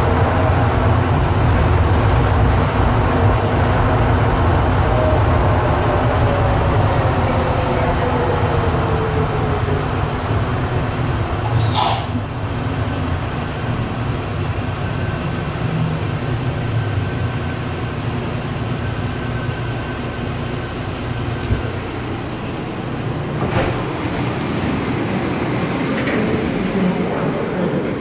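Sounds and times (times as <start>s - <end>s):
train rumbling through tunnel: 0.0s - 28.0s
train doors sliding open: 11.2s - 12.5s, 21.2s - 26.8s.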